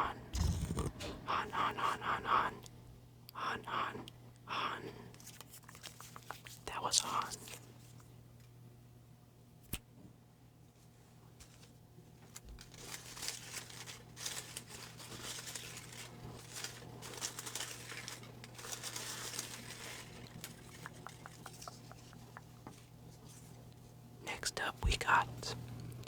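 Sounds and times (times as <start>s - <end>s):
paper rustling and crinkling: 5.2s - 8.0s, 11.4s - 23.6s.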